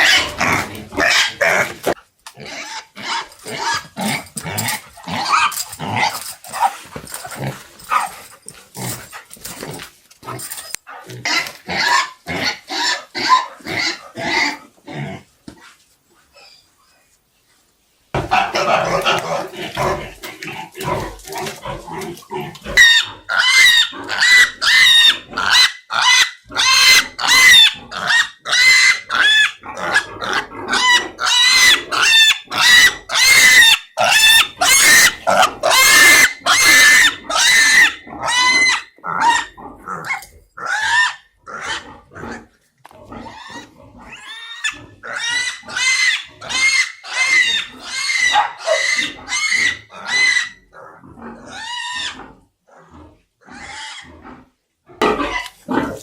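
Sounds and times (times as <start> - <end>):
piglets squealing loudly: 0.0 - 1.8, 22.7 - 41.9, 43.3 - 50.6, 51.5 - 52.3, 53.5 - 54.1.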